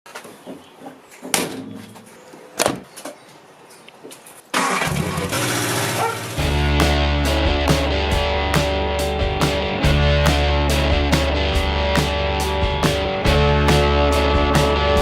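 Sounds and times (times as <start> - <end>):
car engine starting and running: 4.6 - 7.2.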